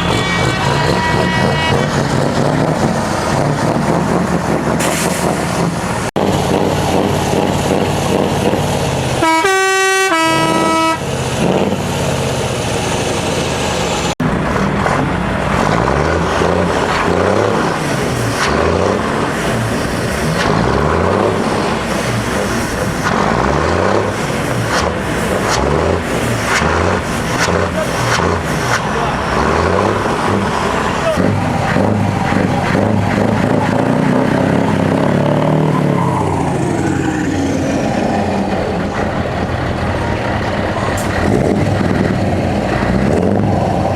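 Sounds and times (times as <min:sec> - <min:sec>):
air horn blowing: 0:00.0 - 0:02.2, 0:09.2 - 0:11.1
lorry engines with open exhausts: 0:00.0 - 0:43.9
truck engine revving: 0:00.0 - 0:43.9.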